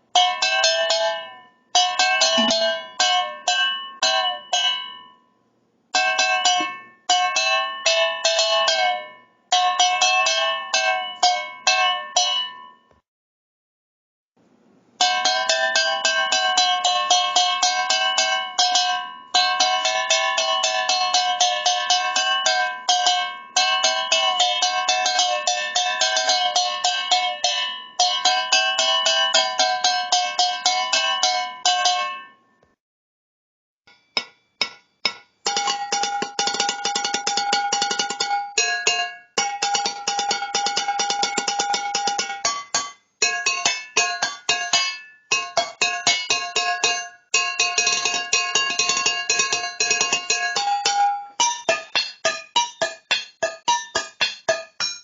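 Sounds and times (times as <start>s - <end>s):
metal cans struck rapidly: 35.5s - 46.8s, 47.4s - 55.0s.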